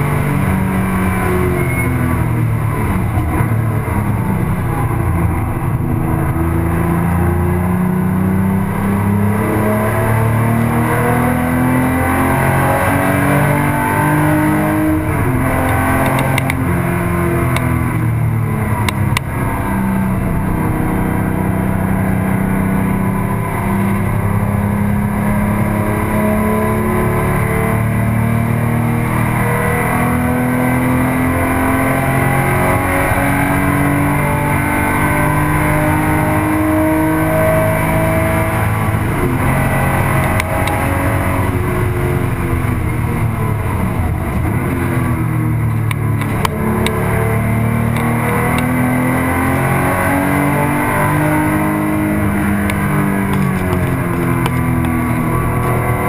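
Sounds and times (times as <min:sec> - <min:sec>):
car engine accelerating: 0:00.0 - 0:56.0
road and wind noise: 0:00.0 - 0:56.0
clicks: 0:16.0 - 0:16.6, 0:45.7 - 0:47.0.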